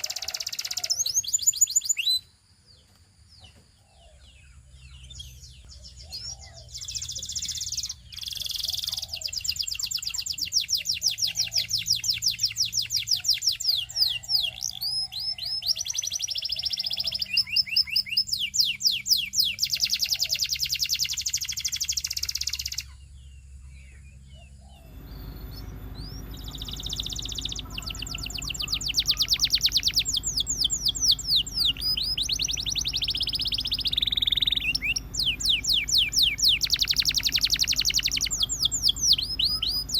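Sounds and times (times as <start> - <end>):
canary singing trills: 0.0 - 39.9
steady low hum: 22.9 - 39.9.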